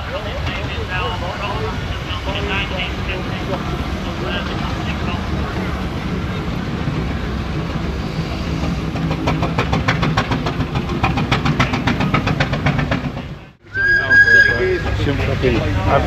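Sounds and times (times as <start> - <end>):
rapid regular clicking clatter: 9.0 - 13.3.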